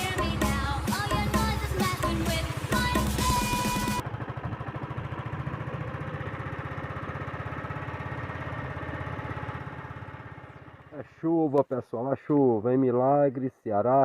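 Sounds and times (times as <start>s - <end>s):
background music: 0.0s - 4.0s
vehicle engine running: 0.0s - 11.5s.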